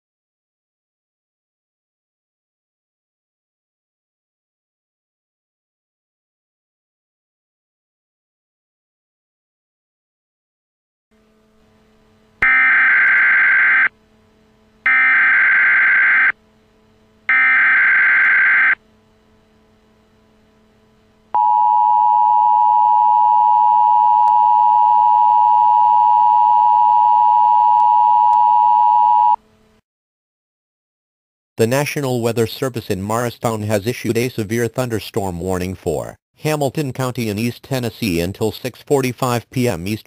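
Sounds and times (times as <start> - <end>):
two-tone attention signal: 21.4 - 29.4.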